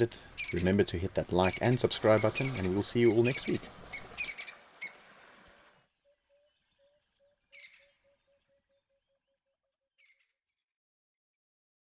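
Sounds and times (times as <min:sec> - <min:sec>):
bird calling repeated notes: 0:01.4 - 0:05.0, 0:06.0 - 0:09.3.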